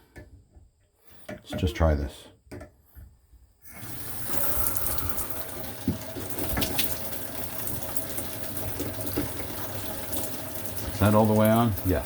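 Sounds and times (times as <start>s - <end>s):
shower water spraying: 3.7s - 12.0s.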